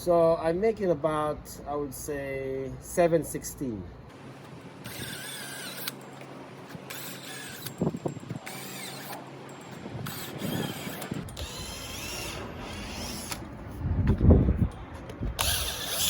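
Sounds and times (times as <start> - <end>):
drill bit squealing: 4.9 - 6.0, 6.9 - 9.2, 10.0 - 13.4, 15.4 - 16.0.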